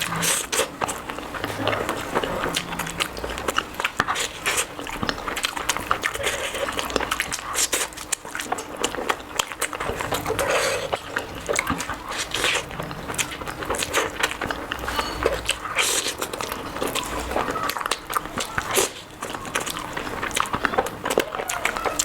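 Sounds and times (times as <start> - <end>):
person chewing wetly: 0.0 - 22.0.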